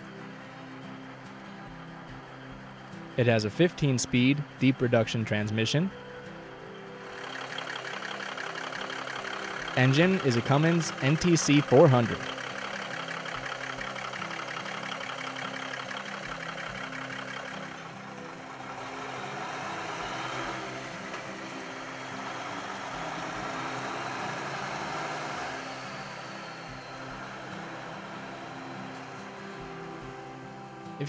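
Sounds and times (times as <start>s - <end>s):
diesel truck engine idling: 6.3s - 30.8s.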